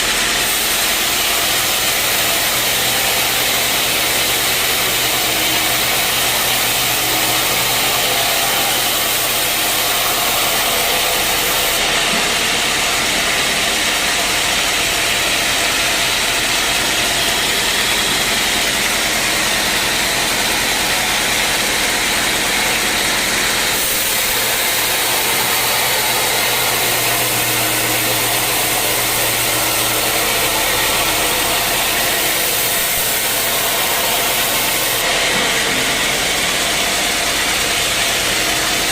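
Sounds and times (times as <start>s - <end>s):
low motor hum: 0.0s - 38.9s
motor-driven sawing: 0.0s - 38.9s.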